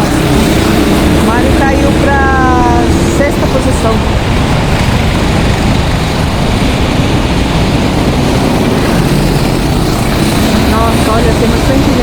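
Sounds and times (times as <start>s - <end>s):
go-karts engine and tyre noise: 0.0s - 12.0s.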